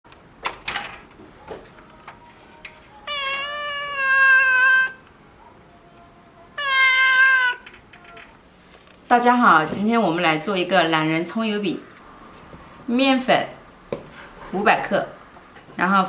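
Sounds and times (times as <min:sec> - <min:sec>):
cat meowing: 0:02.9 - 0:05.0, 0:06.4 - 0:08.2.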